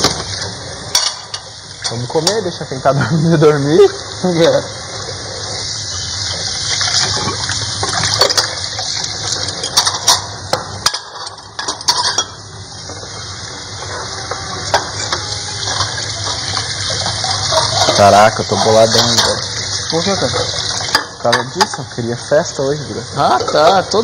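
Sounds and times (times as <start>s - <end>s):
steady hiss: 0.0s - 24.0s
plates and cutlery clinking: 0.9s - 2.4s, 6.8s - 13.1s, 13.8s - 19.5s, 20.1s - 21.9s, 23.2s - 24.0s.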